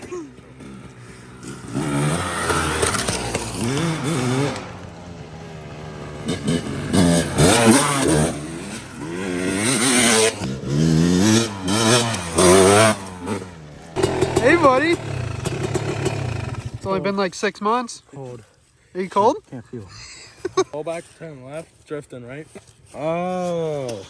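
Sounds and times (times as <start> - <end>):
dirt bike engine revving: 0.0 - 17.8.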